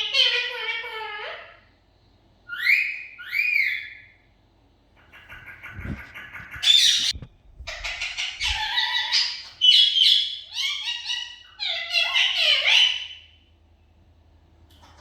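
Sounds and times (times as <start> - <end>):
budgerigar chattering: 5.0 - 10.3.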